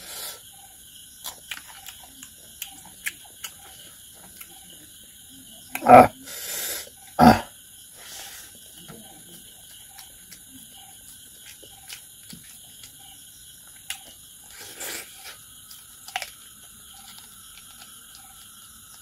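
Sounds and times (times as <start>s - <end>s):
background hiss: 0.0s - 1.6s, 5.0s - 8.6s, 11.1s - 19.0s
person chewing with mouth open: 1.2s - 4.6s, 9.6s - 19.0s.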